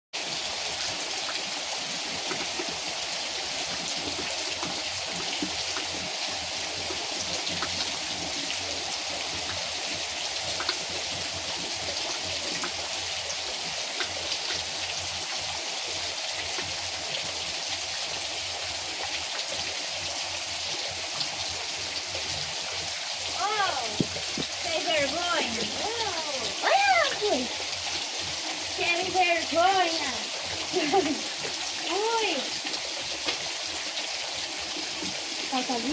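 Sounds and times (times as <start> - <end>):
rain falling: 0.2 - 35.9
raindrops ticking: 2.1 - 2.9, 3.6 - 15.6, 22.0 - 35.9.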